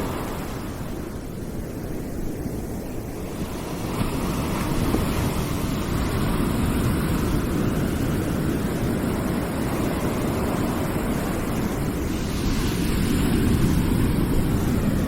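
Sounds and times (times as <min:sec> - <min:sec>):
deep rushing hiss: 0:03.4 - 0:15.0.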